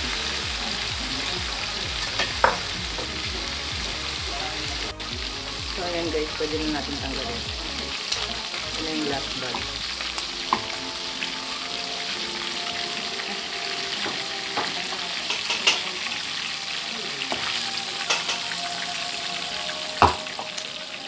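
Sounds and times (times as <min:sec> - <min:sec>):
meat sizzling in a wok: 0:00.0 - 0:21.0
metal tongs clicking on pan: 0:15.2 - 0:16.0, 0:17.3 - 0:18.5.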